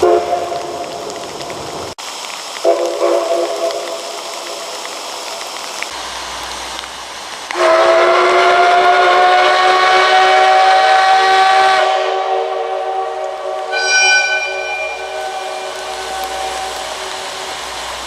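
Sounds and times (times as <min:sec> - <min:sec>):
steam locomotive whistle: 0:07.5 - 0:18.0.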